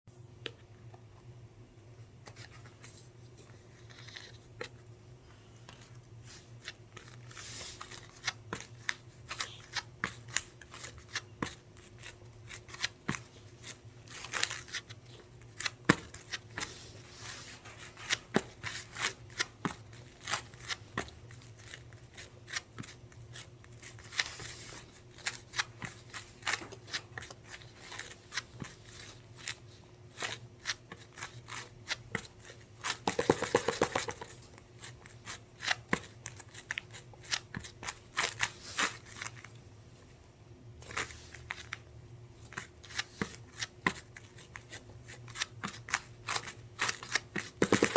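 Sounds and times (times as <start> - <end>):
faint steady hum: 0.1 - 47.9
small objects clicking and rustling: 33.0 - 34.3, 47.6 - 47.9.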